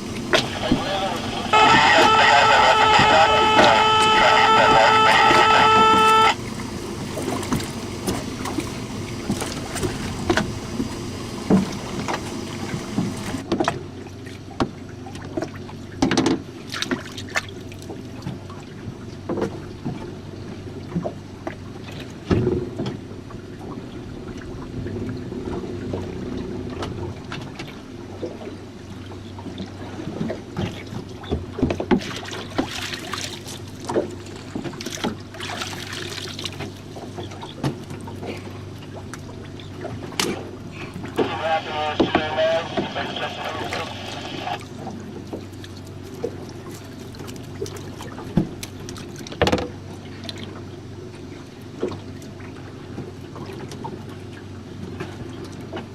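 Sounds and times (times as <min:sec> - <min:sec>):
boat low rumble: 0:00.0 - 0:55.9
water splashing: 0:31.9 - 0:49.4.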